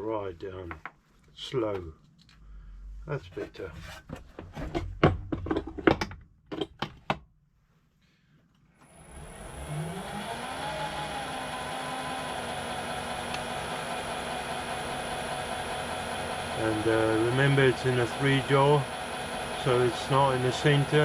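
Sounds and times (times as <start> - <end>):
lathe motor spinning: 8.8 - 21.0.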